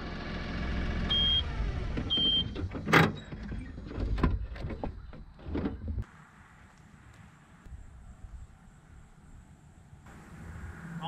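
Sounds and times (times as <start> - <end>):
vehicle engine running: 0.0 - 2.6
knocks and clunks: 1.9 - 6.0.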